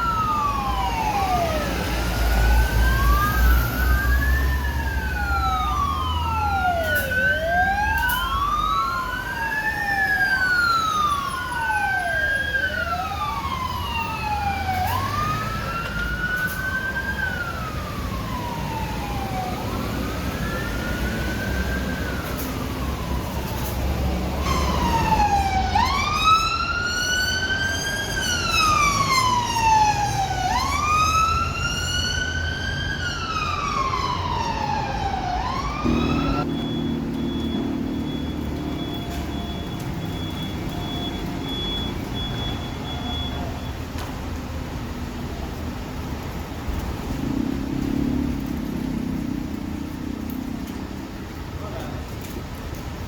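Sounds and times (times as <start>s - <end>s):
wailing motorcycle siren: 0.0s - 52.8s
traffic noise: 0.0s - 53.0s
motorcycle engine: 35.8s - 38.7s.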